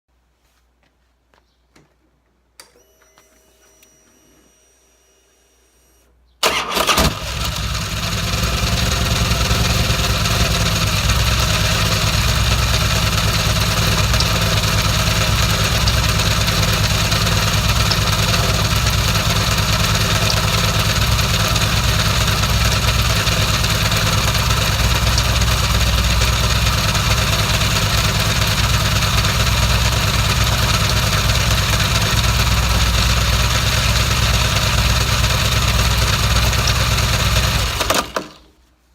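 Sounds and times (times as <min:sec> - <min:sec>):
motorcycle engine idling: 0:07.2 - 0:37.9.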